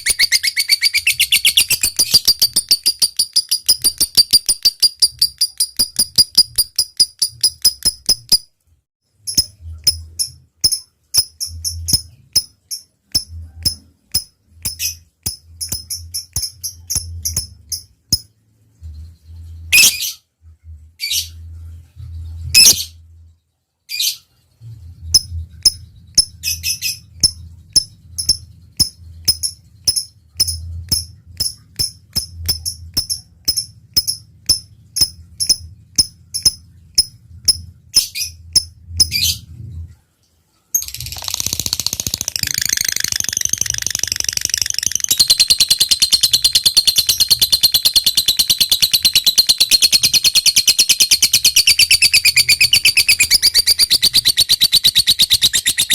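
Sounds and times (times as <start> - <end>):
lovebird rattling trill: 0.0 - 8.5, 25.6 - 39.3, 40.8 - 55.9
lovebird sharp chirps: 0.0 - 8.5, 9.3 - 18.3, 19.7 - 20.2, 22.5 - 22.9, 25.2 - 39.4, 40.8 - 55.9.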